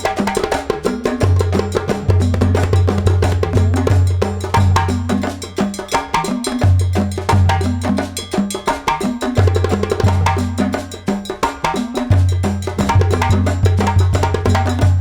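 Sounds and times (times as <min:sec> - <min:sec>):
wood-block and cowbell percussion: 0:00.0 - 0:15.0.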